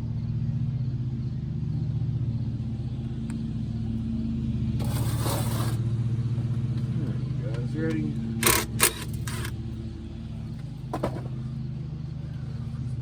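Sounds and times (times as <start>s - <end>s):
car engine idling: 2.6s - 13.0s.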